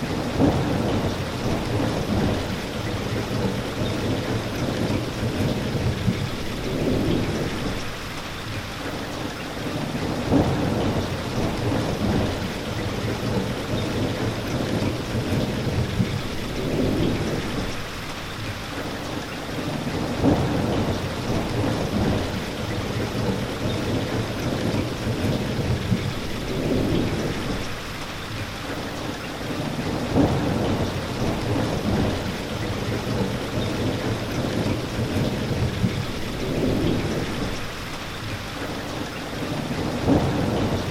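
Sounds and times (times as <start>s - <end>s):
heavy rain falling: 0.0s - 40.9s
low rolling thunder: 0.1s - 8.0s, 10.0s - 18.0s, 19.9s - 28.0s, 29.8s - 37.9s, 39.5s - 40.9s.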